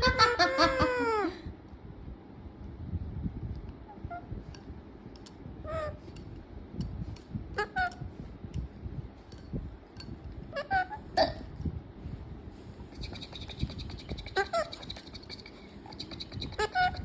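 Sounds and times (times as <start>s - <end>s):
parrot calling: 12.9s - 17.0s.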